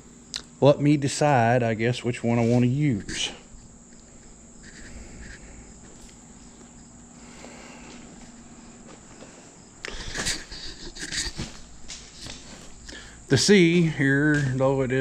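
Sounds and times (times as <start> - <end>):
insects chirring: 0.0 - 15.0
rustling scuffs: 2.4 - 3.4, 7.8 - 14.7.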